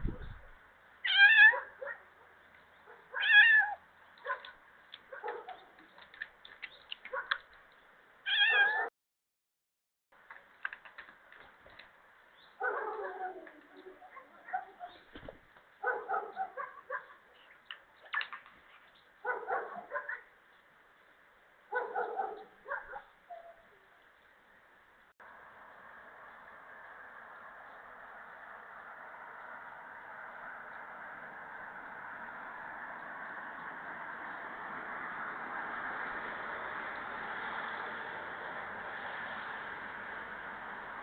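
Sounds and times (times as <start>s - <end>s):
cat meowing: 1.0s - 1.7s, 3.2s - 3.8s, 8.3s - 8.9s.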